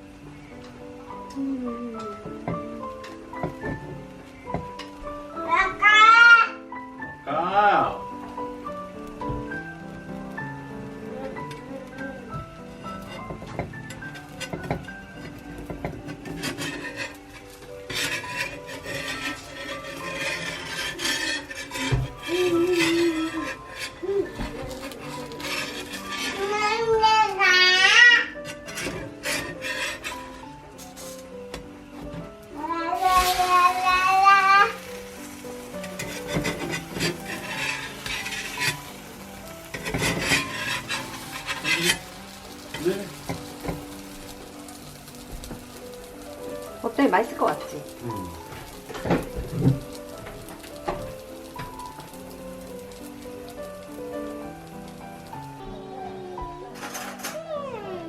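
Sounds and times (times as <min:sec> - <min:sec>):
soft background music: 0:00.0 - 0:58.0
rasping scraping strokes: 0:16.1 - 0:26.8, 0:28.5 - 0:31.3, 0:34.7 - 0:44.1.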